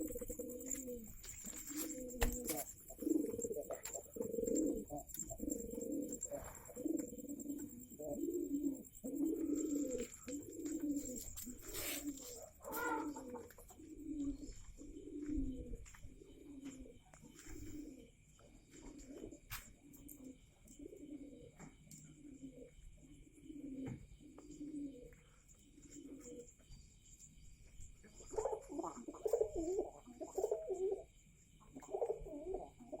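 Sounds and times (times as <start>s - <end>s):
pigeons cooing: 0.0s - 26.8s, 28.0s - 33.0s
short rustle: 11.0s - 12.9s.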